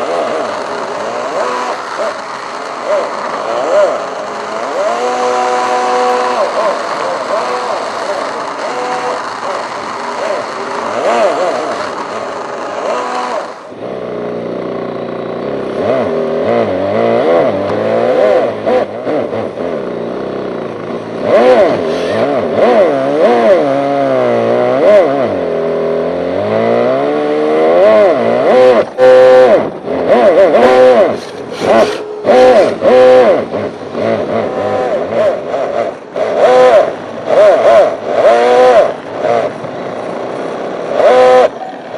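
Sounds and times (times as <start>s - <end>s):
synthesized engine note from speaker: 0.0s - 19.4s, 27.7s - 40.2s.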